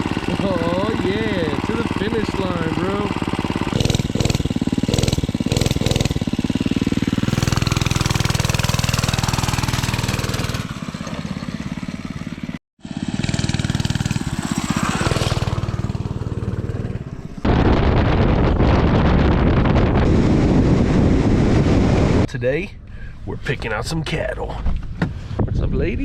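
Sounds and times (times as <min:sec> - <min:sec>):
dirt bike engine revving: 0:00.0 - 0:18.2.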